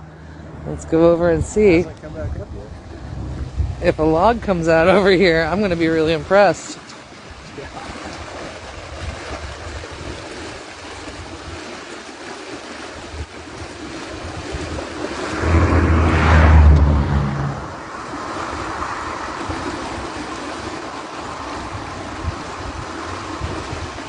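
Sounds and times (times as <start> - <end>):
low rumble: 0.0 - 5.4, 15.1 - 18.0
water rushing: 0.0 - 24.0
wind buffeting microphone: 0.6 - 24.0.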